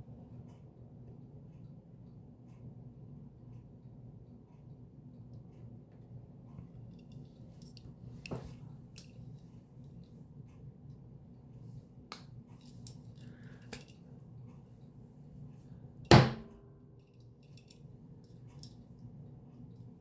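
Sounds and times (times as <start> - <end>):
low steady room hum: 0.0 - 20.0
sharp knock on surface: 16.1 - 16.5.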